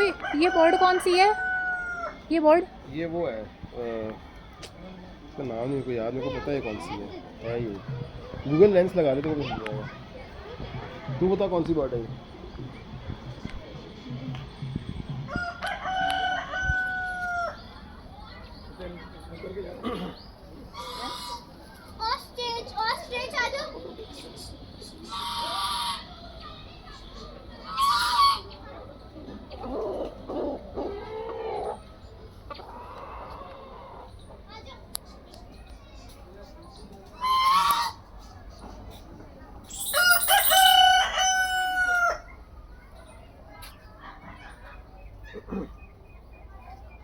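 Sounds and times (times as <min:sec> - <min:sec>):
birds chirping high: 0:17.2 - 0:22.0, 0:39.7 - 0:41.6, 0:42.2 - 0:47.0.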